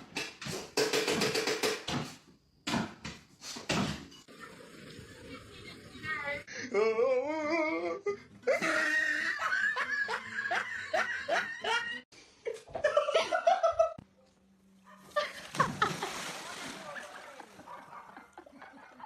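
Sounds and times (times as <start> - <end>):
people laughing: 6.8 - 14.0, 15.1 - 19.0.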